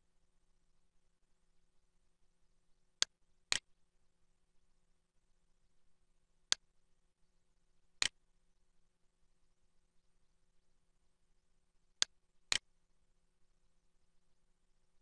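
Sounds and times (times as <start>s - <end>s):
faint low hum: 0.0s - 15.0s
computer mouse clicks: 3.0s - 3.7s, 12.0s - 12.7s.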